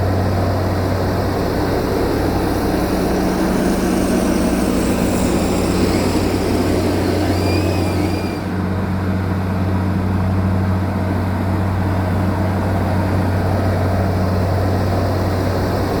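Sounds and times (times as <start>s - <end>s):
bulldozer diesel engine drone: 0.0s - 16.0s
high squeal: 2.3s - 8.6s.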